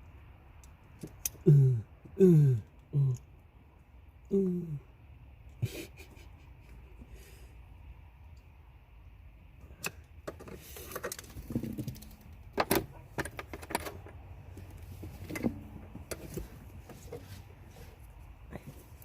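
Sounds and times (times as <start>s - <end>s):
person grunting: 1.4s - 3.2s, 4.3s - 4.9s.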